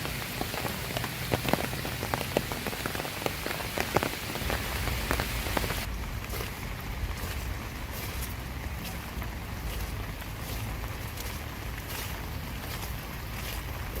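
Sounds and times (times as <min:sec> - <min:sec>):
rain drops pattering: 0:00.0 - 0:14.0
low rumble: 0:04.4 - 0:13.9.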